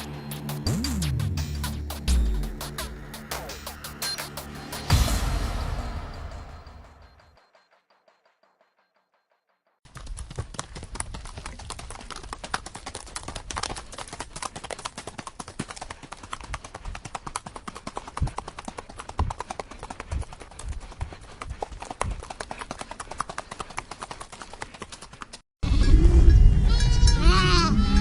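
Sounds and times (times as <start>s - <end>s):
horse hooves clip-clopping: 9.9s - 25.4s.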